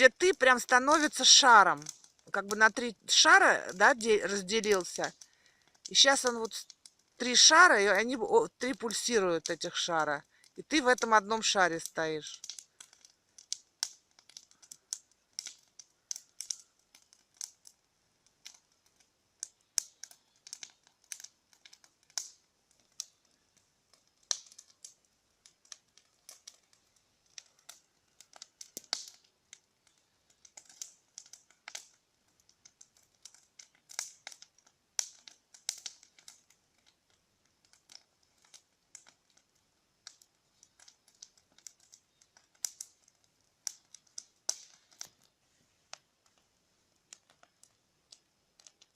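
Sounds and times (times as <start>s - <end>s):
bonfire crackling: 0.0s - 48.9s.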